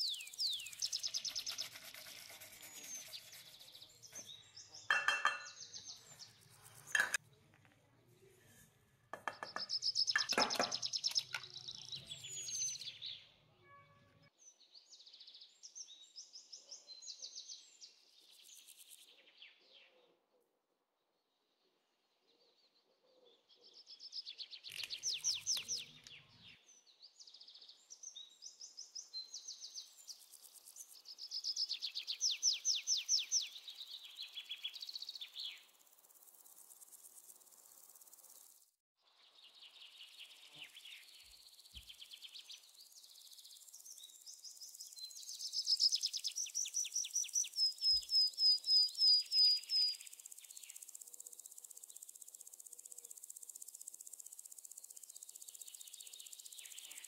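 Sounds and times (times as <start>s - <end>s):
birds singing: 0.0s - 7.2s, 9.2s - 13.4s, 23.1s - 35.6s, 39.5s - 51.3s
sharp repeated bird chirps: 0.0s - 7.2s, 9.3s - 13.0s, 24.0s - 26.6s, 28.3s - 35.7s, 39.8s - 53.2s.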